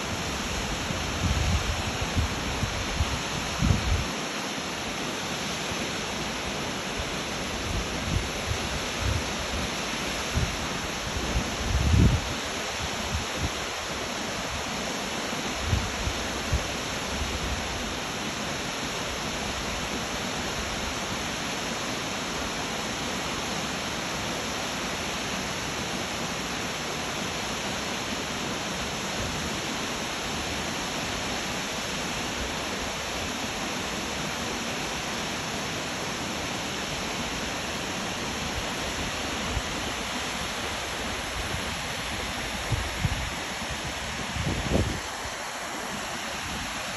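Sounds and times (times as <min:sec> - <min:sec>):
waterfall rushing: 0:00.0 - 0:46.9.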